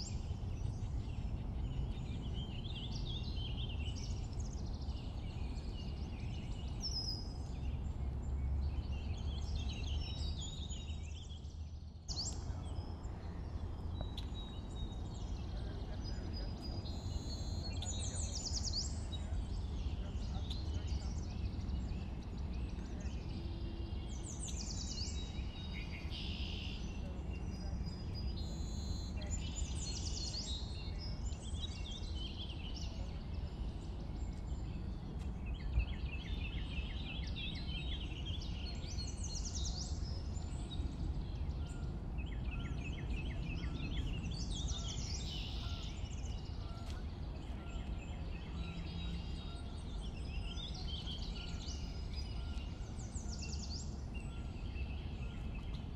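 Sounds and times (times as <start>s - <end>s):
birds chirping and trilling: 35.4s - 55.9s.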